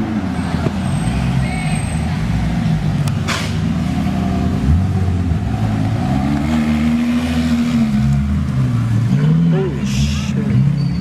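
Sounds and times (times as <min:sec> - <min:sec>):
car engine revving: 0:02.1 - 0:10.8.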